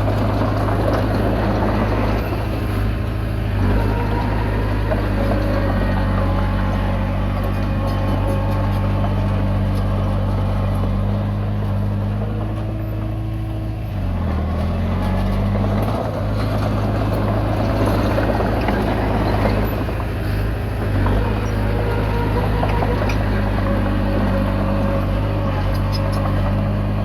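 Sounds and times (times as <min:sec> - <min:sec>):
bulldozer diesel engine: 0:00.0 - 0:27.0.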